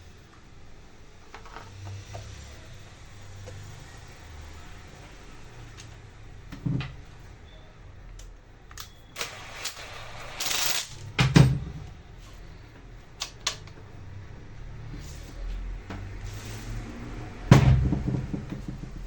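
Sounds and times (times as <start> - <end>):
heavy thud: 17.5 - 19.0.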